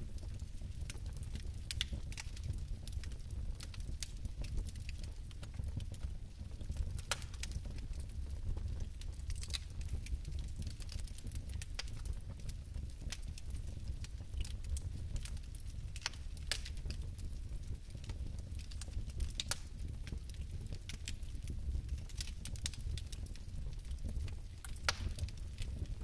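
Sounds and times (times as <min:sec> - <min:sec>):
fire crackling in fireplace: 0:00.0 - 0:26.0.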